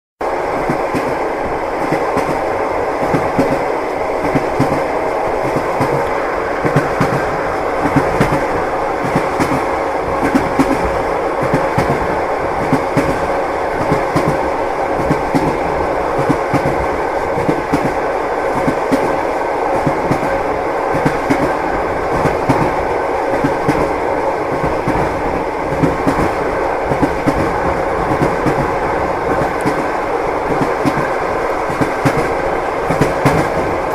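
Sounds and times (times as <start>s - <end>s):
train running rumble: 0.2s - 33.9s
train wheels clattering: 1.8s - 33.9s.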